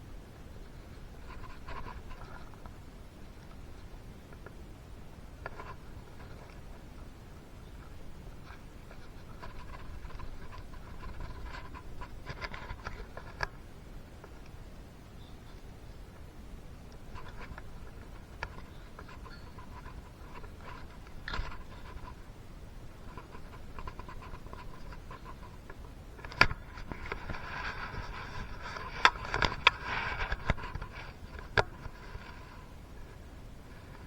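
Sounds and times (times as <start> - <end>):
clicks and rubbing on engine parts: 0.5 - 4.7, 5.3 - 14.6, 16.8 - 34.0
scraping with sharp clicks: 0.6 - 4.7, 5.3 - 14.6, 16.8 - 34.0.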